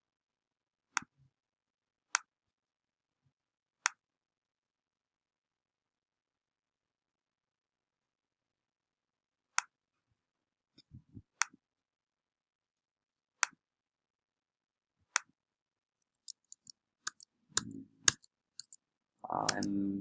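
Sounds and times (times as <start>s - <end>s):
computer mouse clicking: 16.3s - 18.8s, 19.4s - 19.7s.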